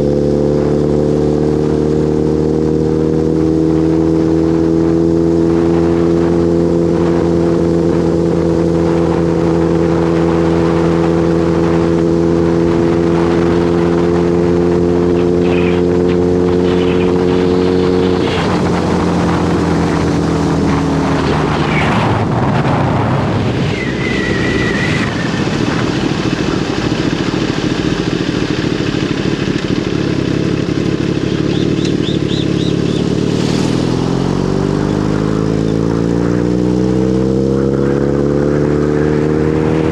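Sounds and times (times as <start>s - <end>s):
motorcycle engine running: 0.0s - 39.9s
rushing noise: 15.2s - 36.6s.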